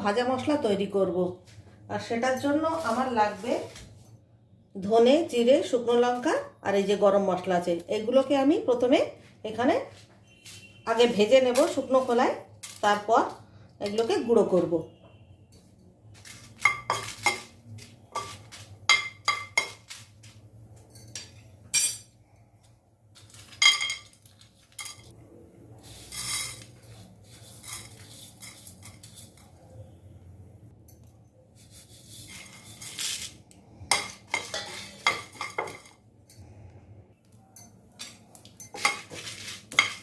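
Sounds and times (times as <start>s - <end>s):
spatula clinking and scraping pan: 33.9s - 35.9s, 37.6s - 40.0s.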